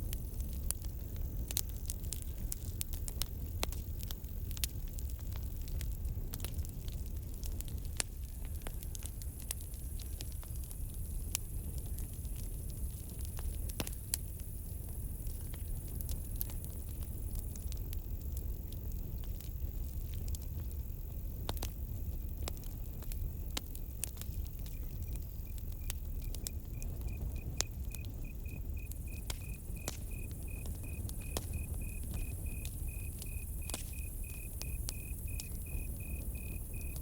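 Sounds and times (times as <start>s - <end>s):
campfire crackling and popping: 0.0s - 37.0s
cricket chirping: 24.2s - 37.0s.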